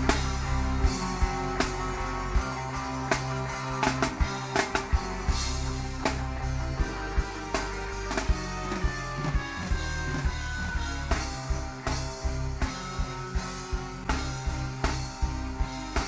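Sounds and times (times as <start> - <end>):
live reggae band: 0.0 - 16.0.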